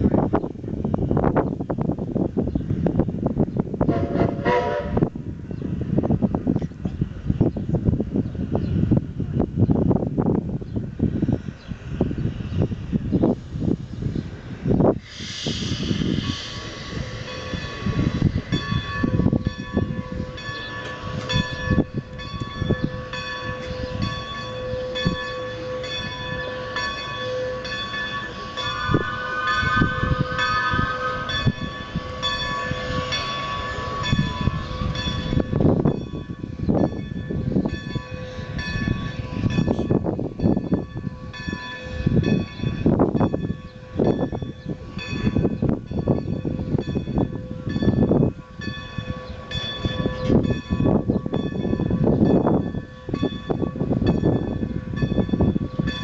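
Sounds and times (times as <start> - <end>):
steam locomotive exhaust chuffs: 2.1 - 56.0
locomotive bell ringing: 16.2 - 56.0.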